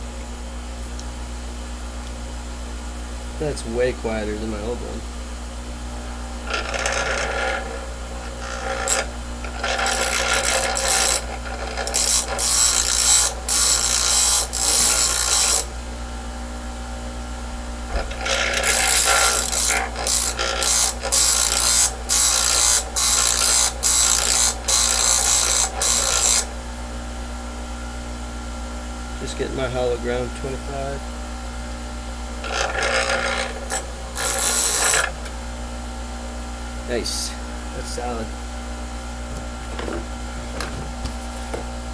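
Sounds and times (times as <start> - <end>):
bench grinder humming: 5.8 - 15.8, 17.6 - 26.7, 32.2 - 35.5
steel grinding on wheel: 6.4 - 15.7, 17.9 - 26.5, 32.4 - 35.2.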